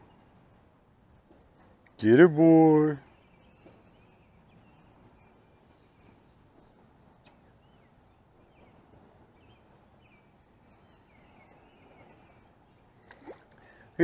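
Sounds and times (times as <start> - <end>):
bird chirps: 1.5 - 2.0, 3.0 - 8.8, 9.4 - 13.4.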